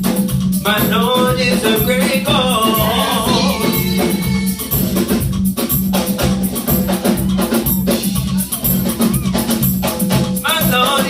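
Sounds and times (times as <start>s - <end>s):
gospel praise band playing: 0.0s - 11.0s
people singing: 0.6s - 5.0s.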